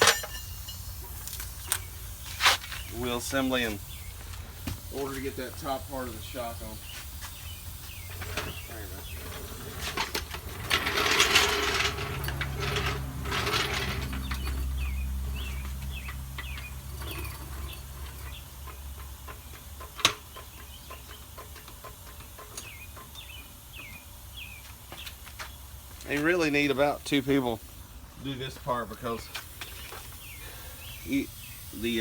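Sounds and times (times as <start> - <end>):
birds chirping faintly: 1.5 - 9.8, 13.8 - 32.0
jack rattling and ratcheting: 9.3 - 23.2.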